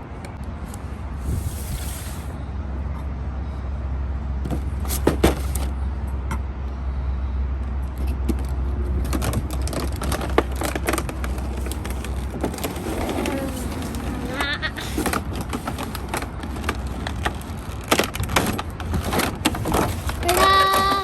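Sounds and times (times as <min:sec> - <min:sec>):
packaging clicks and rattles: 0:08.4 - 0:21.0.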